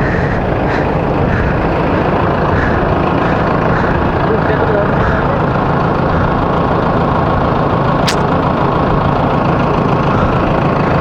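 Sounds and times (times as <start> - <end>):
engine idling: 0.0 - 11.0
short sharp tick: 8.1 - 8.3.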